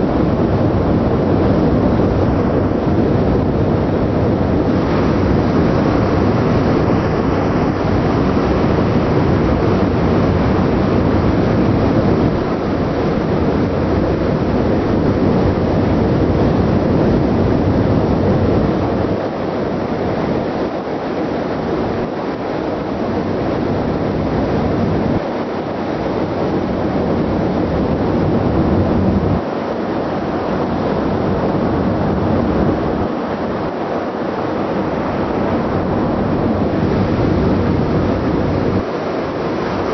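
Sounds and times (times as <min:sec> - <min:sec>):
ship engine rumble: 0:00.0 - 0:39.9
wind on microphone: 0:00.0 - 0:39.9.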